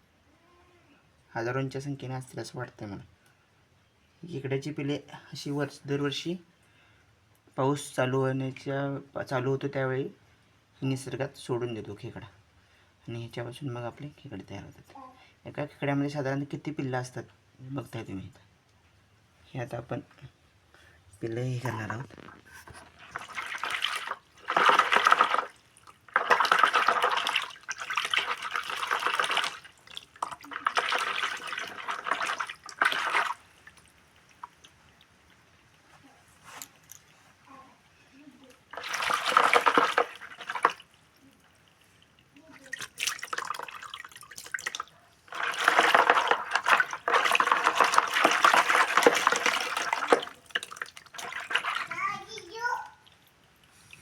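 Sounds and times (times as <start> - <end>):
water pouring and splashing: 21.6 - 37.4, 38.4 - 54.0.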